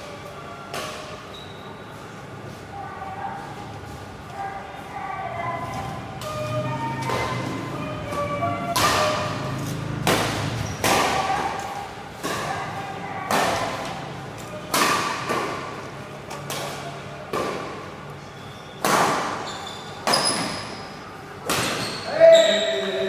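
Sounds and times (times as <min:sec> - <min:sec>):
rackets hitting shuttlecock: 0:06.2 - 0:17.9.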